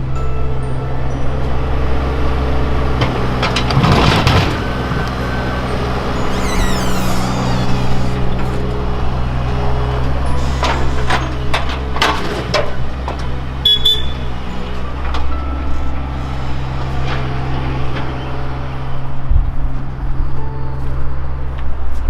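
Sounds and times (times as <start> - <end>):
demolition machine engine running: 0.8 - 20.2
structure cracking and crashing: 3.4 - 5.1
high squeal falling in pitch: 6.0 - 8.6.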